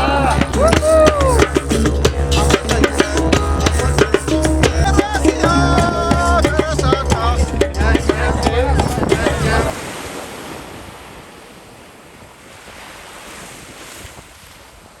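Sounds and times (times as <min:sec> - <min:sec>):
music with singing and drumming: 0:00.0 - 0:09.8
sea surf washing on shore: 0:00.0 - 0:15.0
wind buffeting microphone: 0:00.0 - 0:15.0.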